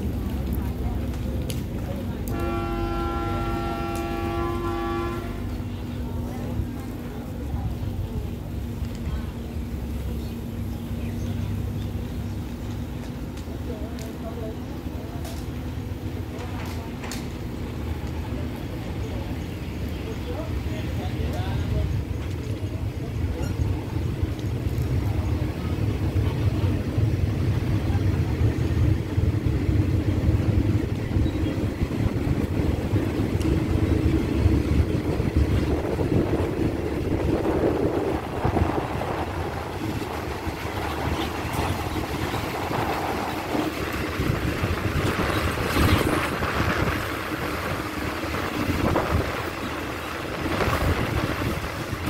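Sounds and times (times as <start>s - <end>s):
train low rumble: 0.0s - 52.0s
wind on microphone: 29.8s - 52.0s.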